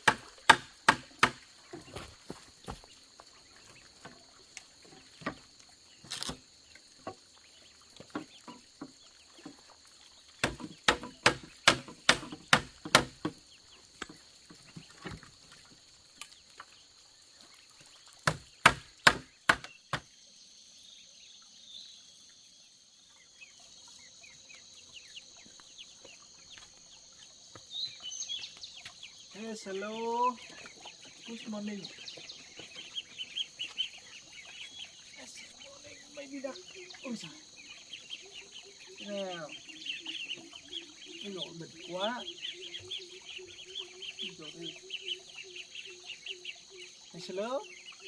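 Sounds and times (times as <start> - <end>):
chopping blows on wood: 0.0 - 1.4, 10.4 - 13.4, 18.2 - 20.1.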